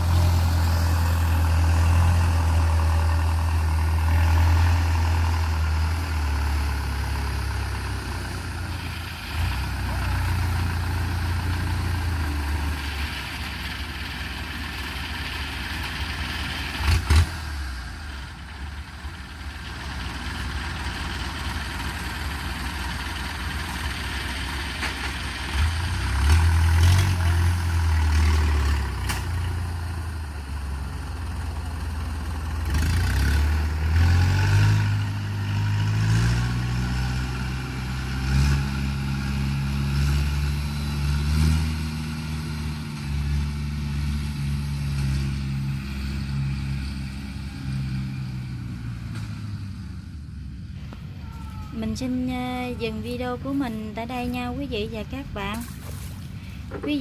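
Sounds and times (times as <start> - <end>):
harvest machinery engines running: 0.0 - 57.0.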